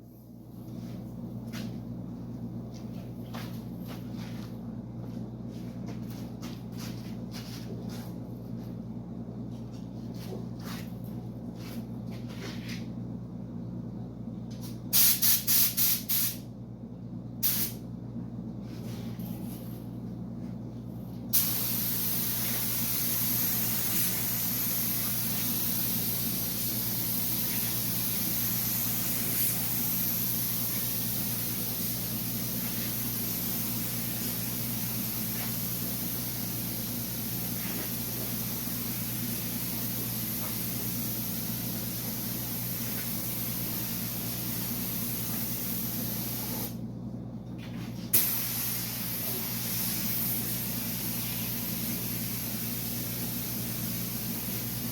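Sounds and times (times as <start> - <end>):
steady low hum: 0.0 - 54.9
paint spray gun hissing: 15.0 - 16.4, 21.3 - 46.8, 48.2 - 54.9.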